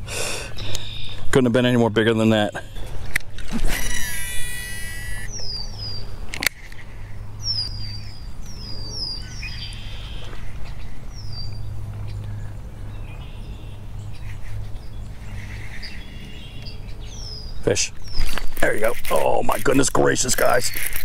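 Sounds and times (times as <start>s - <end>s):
bird chirping: 3.7s - 21.0s.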